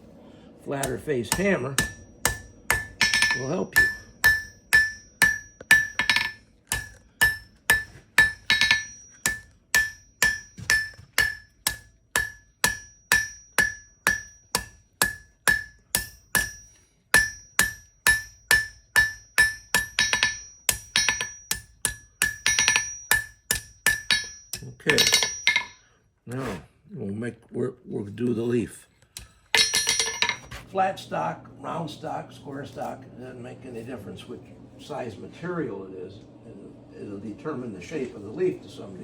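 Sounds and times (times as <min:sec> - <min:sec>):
hammer striking steel on anvil: 0:00.8 - 0:25.8, 0:29.2 - 0:30.6.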